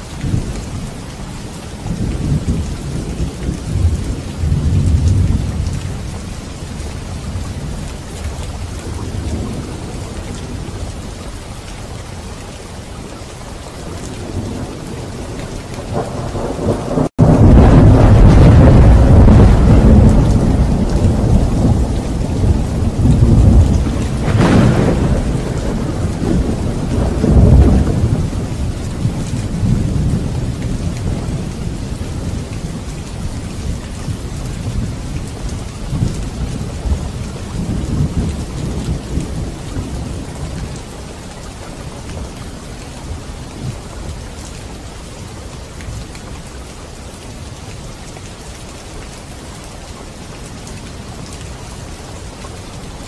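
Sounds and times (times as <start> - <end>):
steady rain: 0.0 - 53.0
thunder rumbling: 1.7 - 11.2, 13.8 - 43.9
sharp thunder clap: 15.9 - 31.5.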